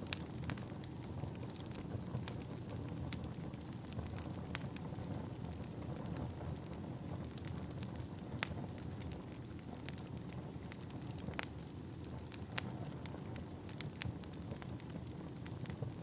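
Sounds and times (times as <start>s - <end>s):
low rush of flames: 0.0s - 16.0s
logs crackling and popping: 0.1s - 16.0s.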